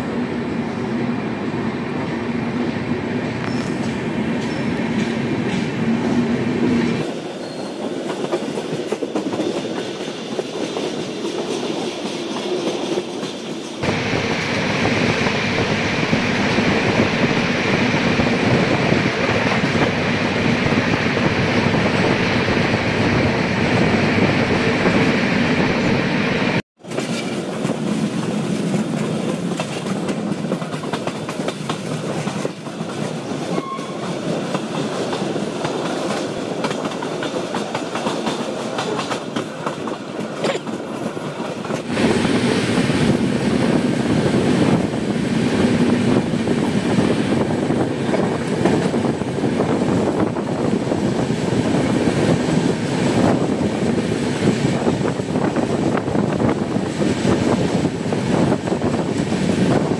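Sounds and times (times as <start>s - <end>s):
train wheel and rail noise: 0.0s - 59.9s
clatter over rail joints: 26.8s - 33.2s, 34.5s - 41.9s.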